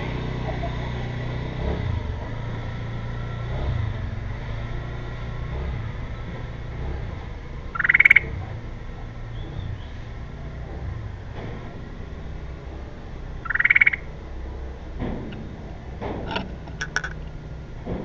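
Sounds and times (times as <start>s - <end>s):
traffic rumble: 0.0s - 18.0s
rapidly pulsed bird call: 7.6s - 8.4s, 13.4s - 14.2s.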